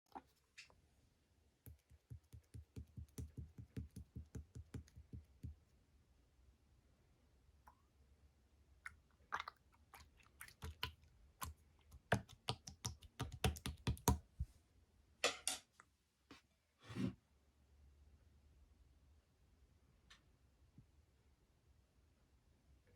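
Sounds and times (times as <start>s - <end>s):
slime squishing: 9.2s - 14.2s.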